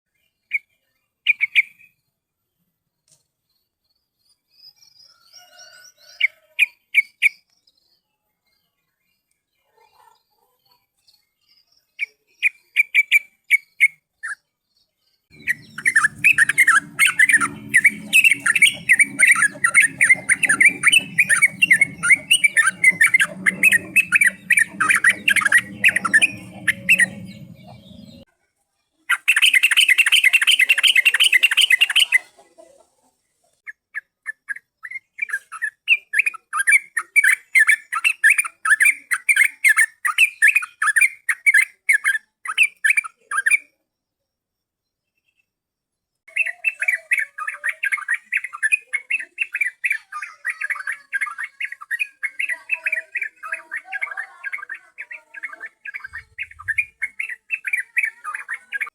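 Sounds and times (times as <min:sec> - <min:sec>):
bulbuls chirping: 0:15.4 - 0:28.2, 0:50.3 - 0:58.9
low hum: 0:15.4 - 0:28.3.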